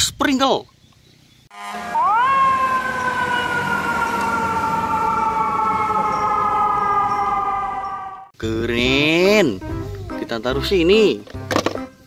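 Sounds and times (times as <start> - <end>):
fire truck siren wailing: 1.5 - 8.4.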